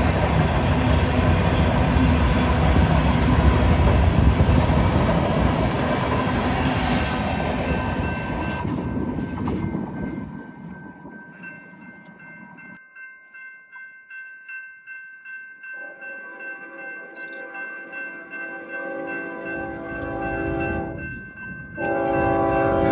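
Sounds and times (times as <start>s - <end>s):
freight train rumbling past: 0.0s - 12.8s, 15.7s - 22.9s
chiming ring of several tones: 10.4s - 22.7s.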